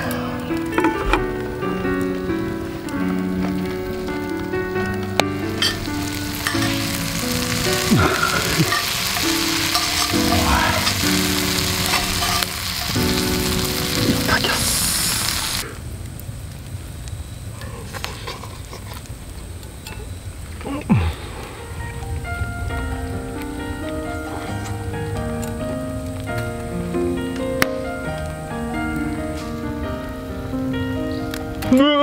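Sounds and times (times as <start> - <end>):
food sizzling in hot oil: 0.0 - 15.6
pan being stirred: 3.0 - 15.6.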